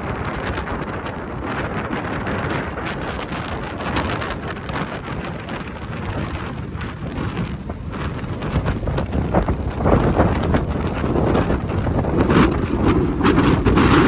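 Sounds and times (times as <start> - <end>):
driving rain: 0.0 - 14.0
rain spatters: 0.0 - 14.0
wind gusting on microphone: 0.0 - 14.0.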